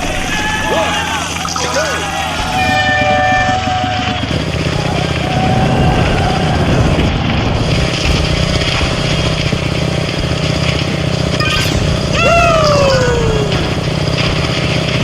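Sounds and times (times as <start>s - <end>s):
motorcycle engine running: 2.1s - 15.0s
road and wind noise: 2.4s - 12.2s
loud sliding pitched tone: 11.4s - 13.8s.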